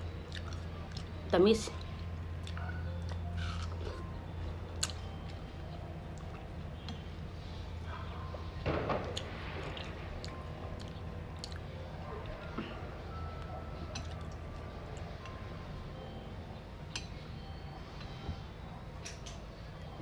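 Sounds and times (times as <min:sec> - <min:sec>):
person eating watermelon: 0:02.4 - 0:04.0.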